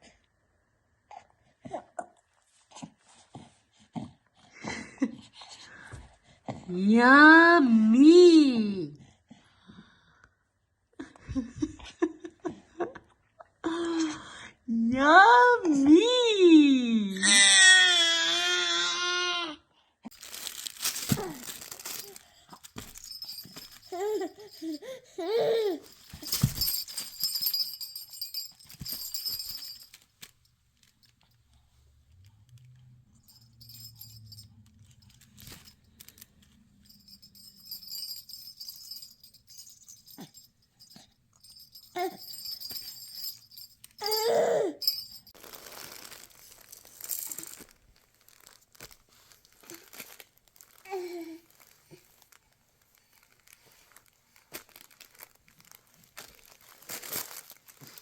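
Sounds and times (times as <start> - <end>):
rattle toy jingling: 20.1 - 30.3, 33.2 - 47.7.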